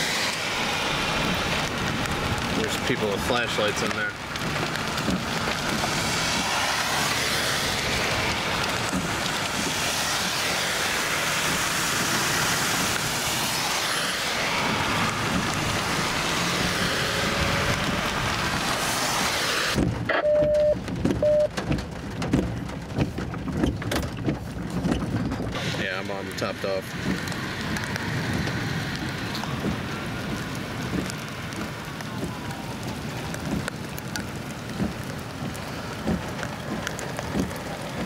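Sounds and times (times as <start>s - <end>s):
rain hiss on moving car: 0.0s - 38.0s
tyres on wet pavement: 0.0s - 38.0s
short beeps: 20.1s - 21.5s.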